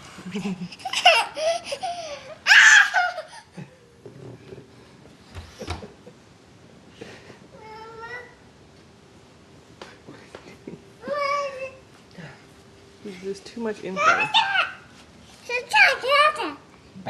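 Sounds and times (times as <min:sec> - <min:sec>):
toddler laughing and squealing: 0:00.8 - 0:03.5, 0:14.0 - 0:14.9.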